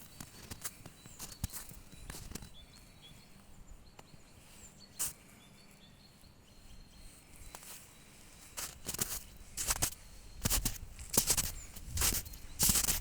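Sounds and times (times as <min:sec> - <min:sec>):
soft crunching: 0:00.0 - 0:02.9, 0:07.3 - 0:13.0
faint bird chirps: 0:00.0 - 0:13.0.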